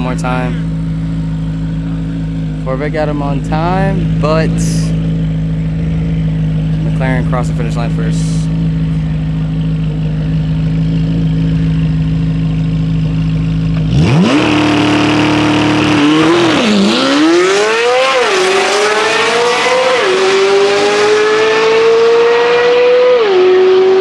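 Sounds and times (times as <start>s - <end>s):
car engine idling: 0.0s - 20.4s
car engine revving through gears: 13.4s - 24.0s.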